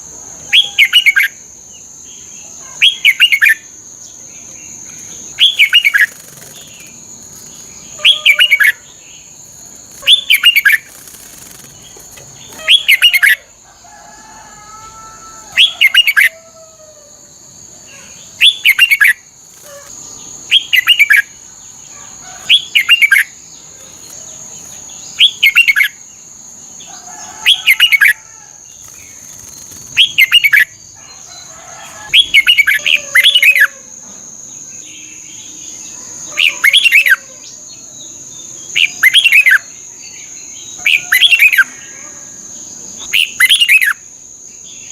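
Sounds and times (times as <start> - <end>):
bird warbling song: 2.2 - 13.5, 15.6 - 16.4, 17.9 - 26.1, 26.8 - 31.5, 32.1 - 33.8.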